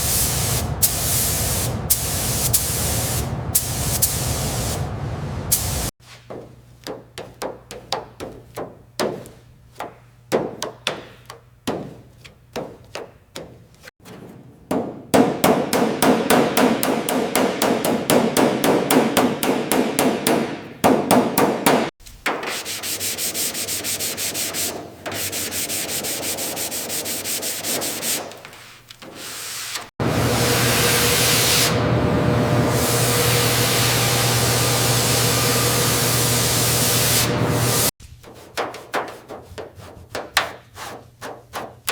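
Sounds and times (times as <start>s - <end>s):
sanding strokes: 0.0s - 4.9s, 22.4s - 31.8s
spray hissing: 0.0s - 5.9s, 32.7s - 37.9s.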